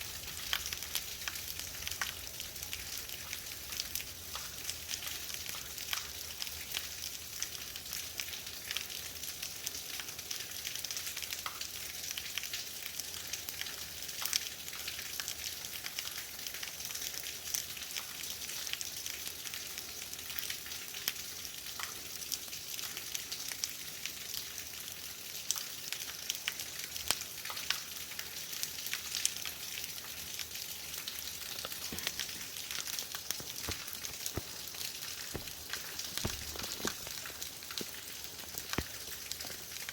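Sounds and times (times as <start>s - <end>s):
heavy rain: 30.4s - 39.9s
drops ticking on hard surfaces: 33.2s - 34.6s, 35.3s - 39.0s.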